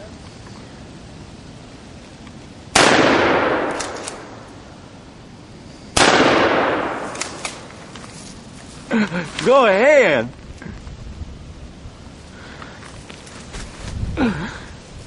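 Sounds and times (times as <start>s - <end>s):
shotgun blasts with echo: 2.7s - 4.5s, 6.0s - 7.7s.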